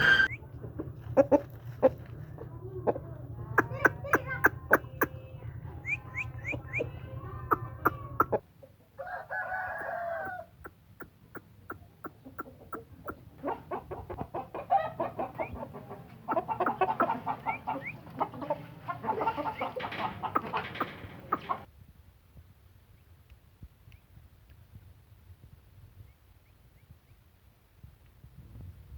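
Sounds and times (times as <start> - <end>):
rooster crowing: 0.0 - 0.4, 9.0 - 10.5
chickens clucking: 0.0 - 21.7.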